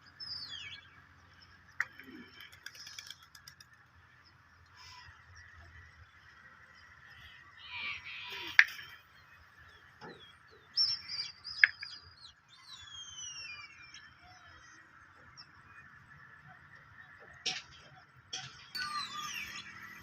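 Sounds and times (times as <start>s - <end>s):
descending whistled bird calls: 0.1s - 1.1s, 7.2s - 16.5s, 18.7s - 20.0s.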